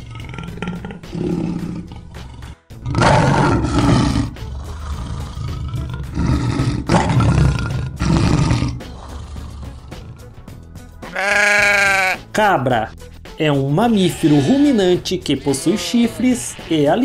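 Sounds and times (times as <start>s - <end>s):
lion roaring: 0.0s - 10.3s.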